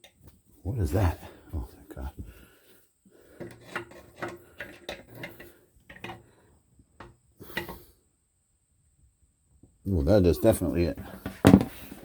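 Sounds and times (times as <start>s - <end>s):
toilet parts clicking and scraping: 3.2s - 7.9s.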